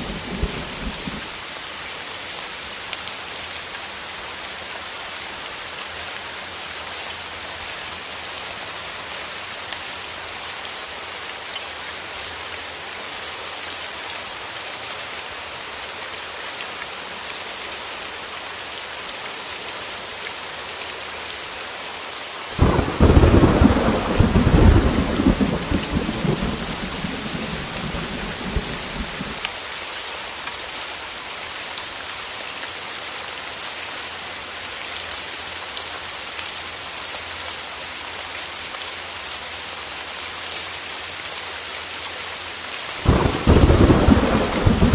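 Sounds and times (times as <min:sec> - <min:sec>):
thunder crack and rumble: 0:00.0 - 0:01.3, 0:22.6 - 0:29.4, 0:43.0 - 0:44.9
heavy rain falling: 0:00.0 - 0:44.9.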